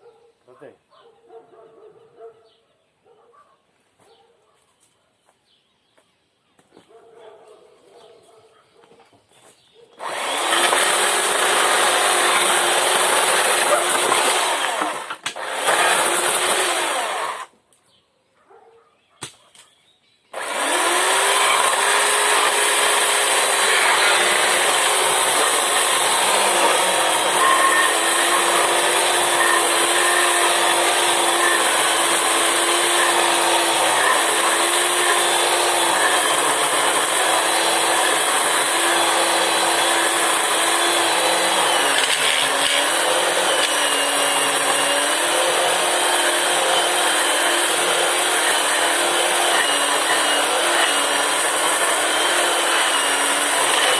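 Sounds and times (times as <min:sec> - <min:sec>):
chainsaw cutting wood: 0:10.0 - 0:17.6, 0:20.3 - 0:53.9.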